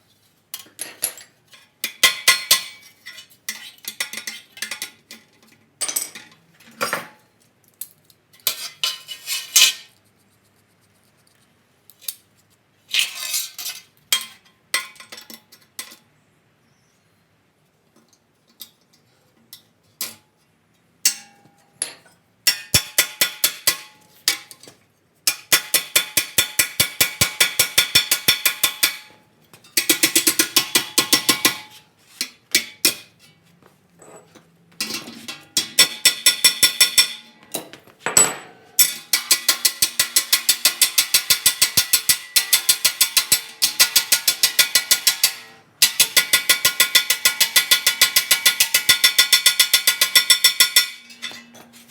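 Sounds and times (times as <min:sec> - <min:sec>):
hammer striking sheet steel: 0:22.5 - 0:24.6, 0:25.3 - 0:33.1, 0:34.8 - 0:37.4, 0:38.4 - 0:51.5.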